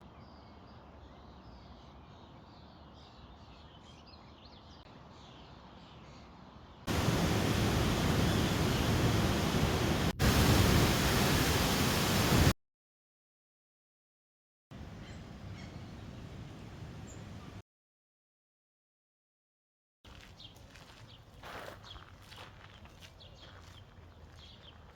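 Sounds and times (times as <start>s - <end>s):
loud steady rushing noise: 6.9s - 12.5s
low hiss: 6.9s - 12.5s.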